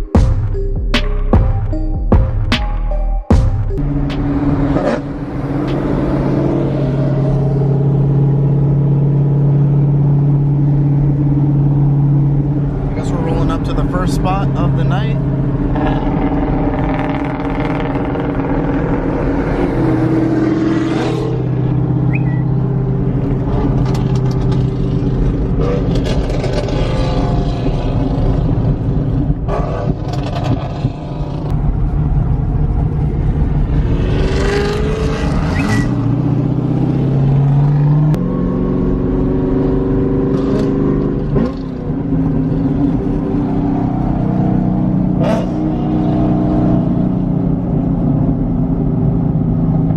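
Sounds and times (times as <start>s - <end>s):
car engine and exhaust revving: 3.3s - 49.9s.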